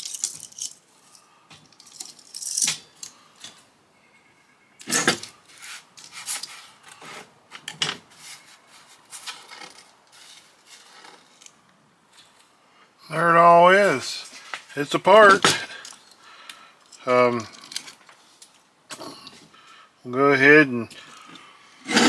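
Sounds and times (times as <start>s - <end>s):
metal parts clinking: 0.0s - 3.2s.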